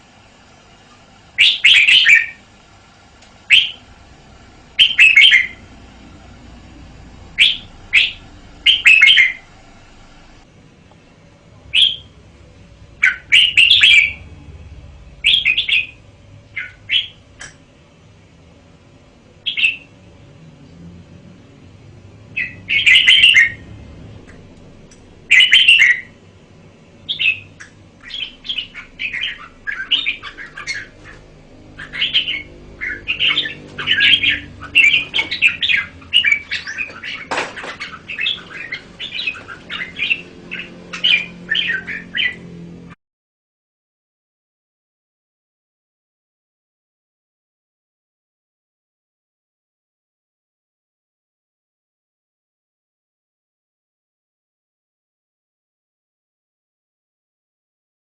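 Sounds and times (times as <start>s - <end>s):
bulbul singing: 1.4s - 2.5s, 3.2s - 10.4s, 11.6s - 17.7s, 19.4s - 20.0s, 22.3s - 42.6s.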